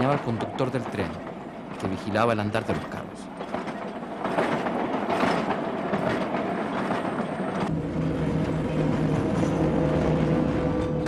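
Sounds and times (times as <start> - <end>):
diesel locomotive engine hum: 0.0 - 11.0
train wagons rattling over rails: 0.0 - 11.0.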